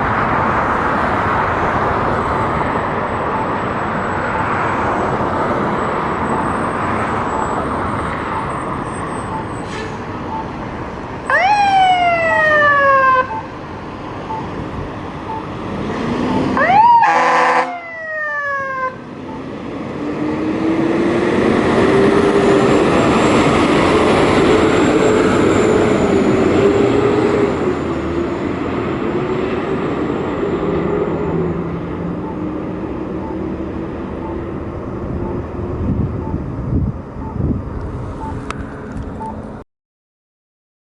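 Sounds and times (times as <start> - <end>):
diesel engine droning: 0.0 - 39.6.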